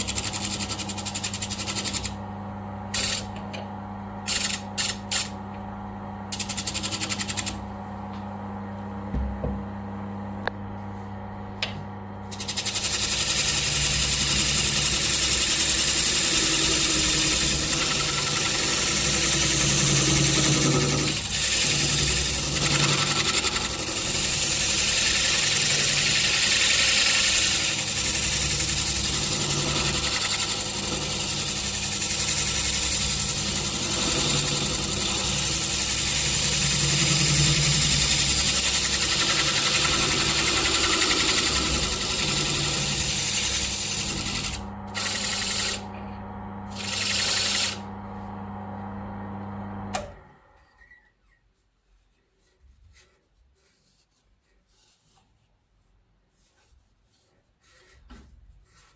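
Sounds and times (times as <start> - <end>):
loud grinding hiss: 12.3 - 45.8
bench grinder motor humming: 12.3 - 48.0.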